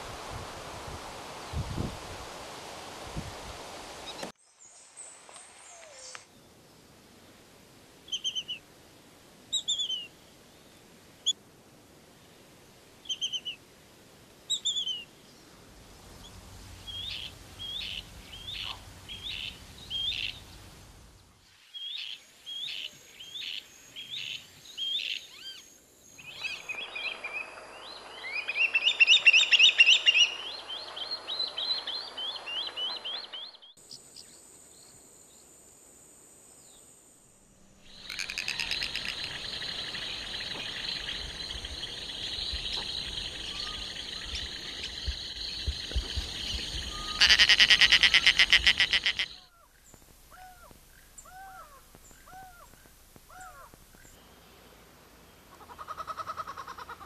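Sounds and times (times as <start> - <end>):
thin down-slurred bird calls: 8.1 - 8.6, 13.0 - 13.6, 14.5 - 15.1, 16.2 - 20.6, 21.7 - 34.4, 37.8 - 54.6
bird chattering: 38.0 - 39.7, 46.9 - 49.5.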